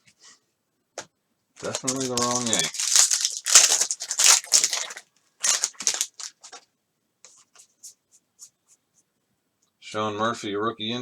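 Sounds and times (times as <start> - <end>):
cards sliding and rustling: 1.6 - 2.8.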